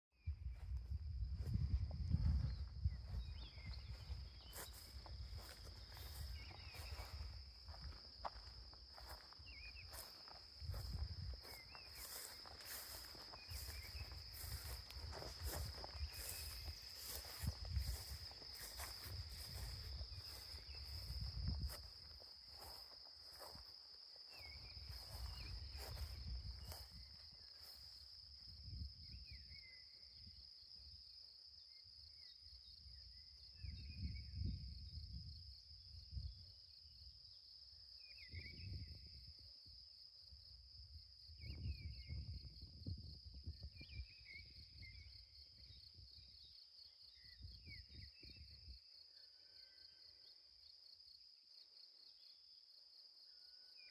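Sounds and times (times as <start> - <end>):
insect trill: 0.5 - 53.9.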